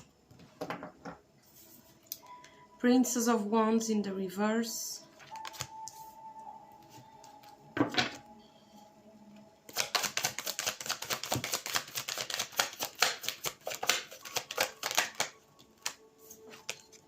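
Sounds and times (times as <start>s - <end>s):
cards shuffling with crisp snaps: 5.2s - 6.0s, 9.7s - 17.0s.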